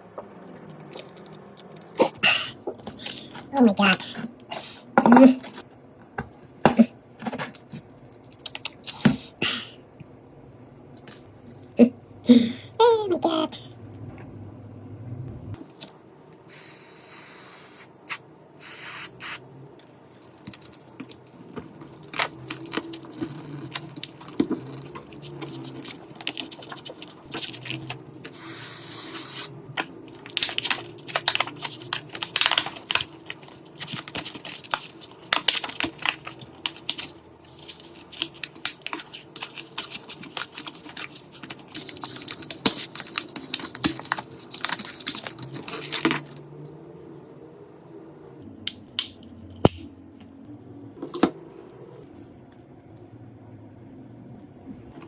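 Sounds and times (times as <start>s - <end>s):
hissing spray bursts: 16.5s - 19.4s.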